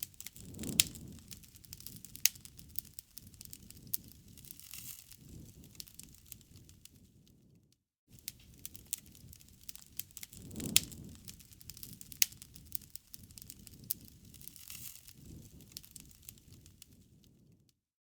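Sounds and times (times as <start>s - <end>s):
loud fire pops: 0.0s - 7.2s, 8.2s - 17.4s
wood fire crackling: 0.0s - 17.7s.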